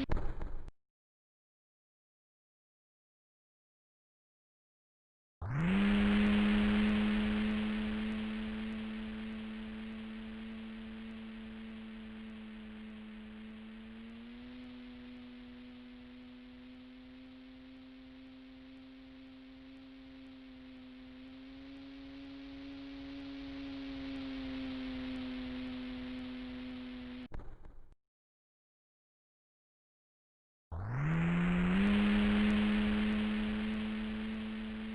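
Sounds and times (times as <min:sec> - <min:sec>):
electric model plane motor whine: 0:05.4 - 0:27.3, 0:30.7 - 0:34.9.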